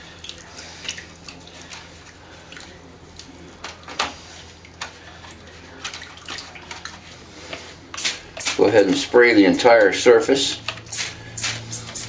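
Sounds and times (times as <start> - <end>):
steady low hum: 10.8 - 12.0.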